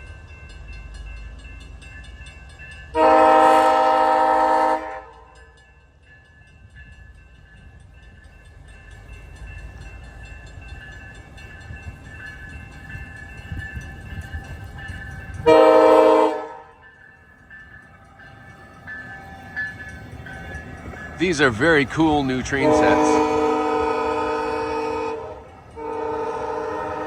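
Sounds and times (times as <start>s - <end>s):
train rumbling slowly: 0.0s - 27.0s
train horn blast: 3.0s - 5.3s, 15.4s - 16.8s, 22.5s - 27.0s.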